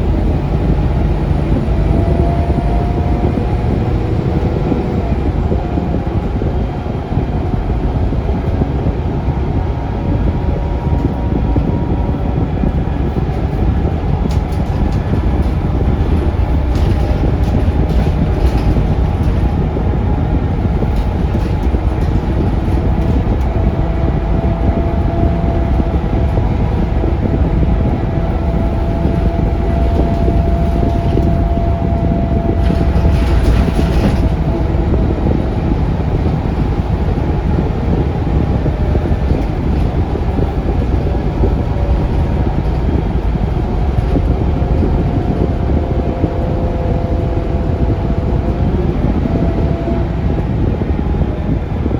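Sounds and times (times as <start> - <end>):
bus engine and road rumble: 0.0 - 51.9
steady whine: 0.0 - 51.9
rattles: 13.0 - 45.4.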